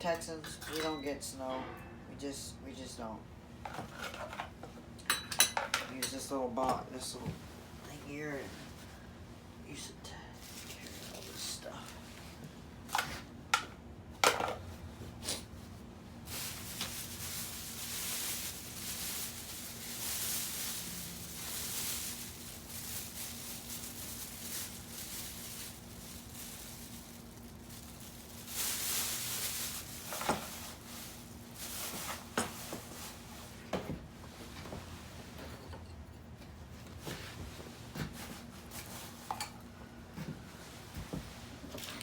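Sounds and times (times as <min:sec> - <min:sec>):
faint steady hum: 0:00.0 - 0:42.0
rustling and scraping: 0:14.4 - 0:42.0.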